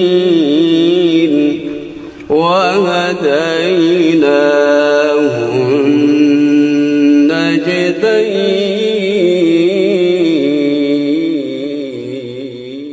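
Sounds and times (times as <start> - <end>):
man chanting recitation: 0.0 - 12.9.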